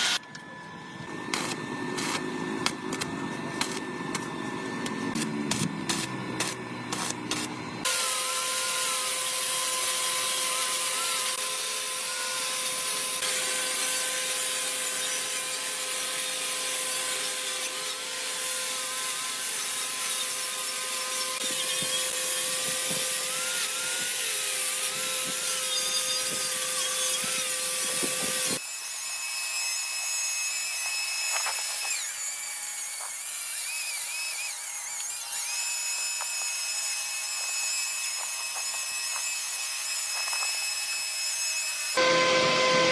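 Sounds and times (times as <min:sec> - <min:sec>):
power tool whining: 0:00.0 - 0:42.9
higher wavering tool whine: 0:41.7 - 0:42.9.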